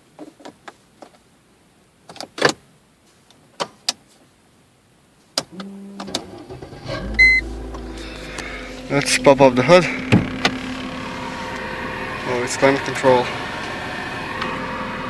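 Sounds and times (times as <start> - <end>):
car engine cranking and idling: 5.4 - 15.0
short high beep: 7.1 - 7.5.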